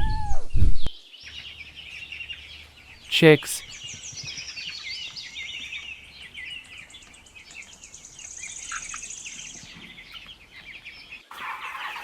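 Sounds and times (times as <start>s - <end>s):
chicks peeping: 3.8s - 12.0s.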